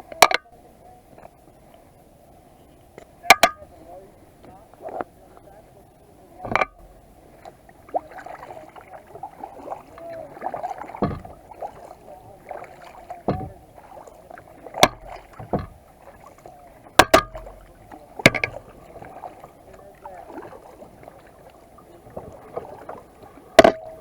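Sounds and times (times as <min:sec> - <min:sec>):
water splashing around paddle: 0:03.2 - 0:05.6, 0:06.2 - 0:24.0
sharp knocks: 0:03.3 - 0:03.7, 0:06.4 - 0:07.0, 0:11.0 - 0:11.5, 0:13.3 - 0:13.6, 0:14.8 - 0:15.8, 0:17.0 - 0:18.7, 0:23.6 - 0:24.0.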